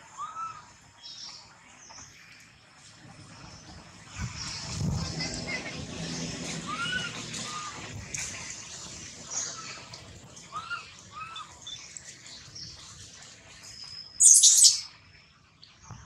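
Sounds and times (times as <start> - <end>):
birds chirping: 9.2 - 12.9, 13.6 - 14.9
shrill bird call: 14.2 - 14.9.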